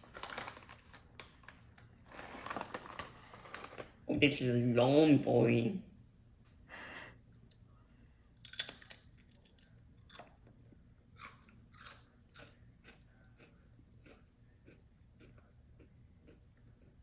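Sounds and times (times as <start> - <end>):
chip being chewed with crunches: 8.5 - 17.0.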